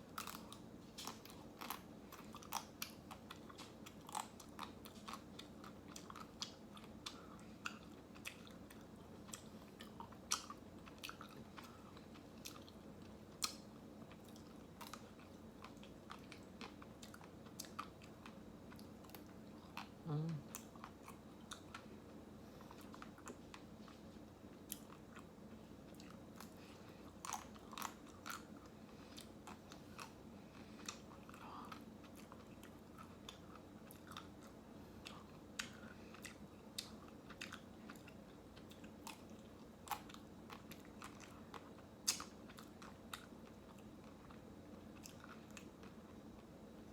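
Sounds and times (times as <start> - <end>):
person chewing ice cream: 0.0 - 46.9
closed-mouth hum: 18.3 - 27.6.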